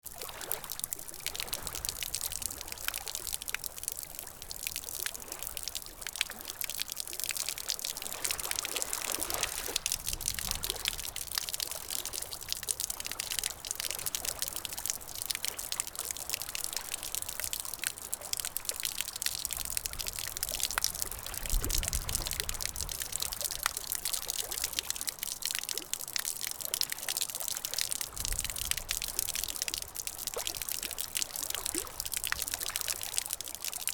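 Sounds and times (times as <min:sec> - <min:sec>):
water trickling and pouring: 0:00.1 - 0:33.9.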